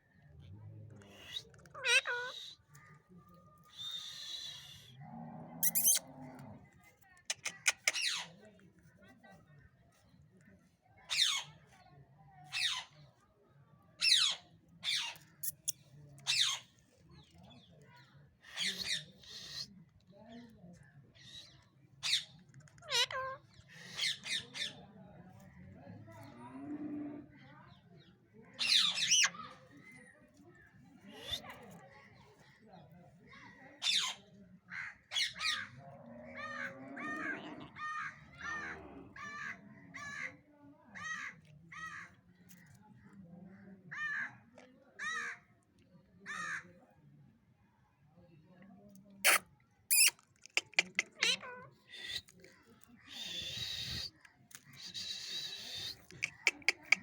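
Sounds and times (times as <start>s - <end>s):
parrot screeching: 5.6s - 6.0s, 49.3s - 52.2s, 55.4s - 57.0s
parrot sweeping shrieks: 49.3s - 51.4s.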